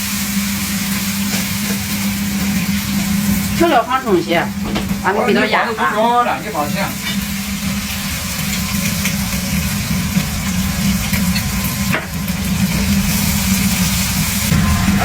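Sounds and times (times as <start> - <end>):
meat sizzling in a wok: 0.0 - 15.0
low hum: 6.4 - 15.0.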